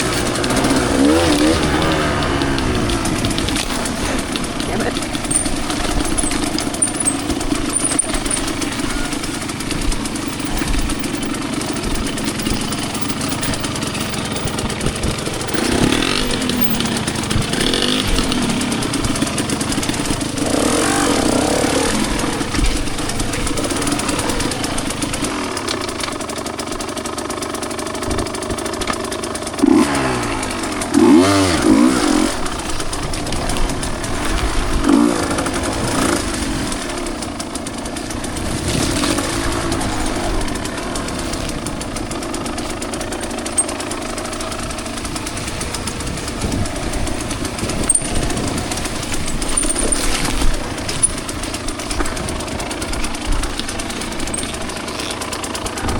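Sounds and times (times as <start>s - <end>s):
two-stroke dirt bike engine revving: 0.0s - 55.9s.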